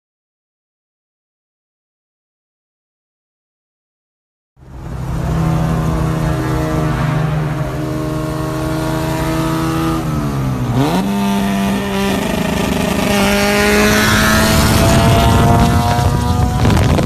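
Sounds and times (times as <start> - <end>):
car engine revving: 4.6 - 17.0.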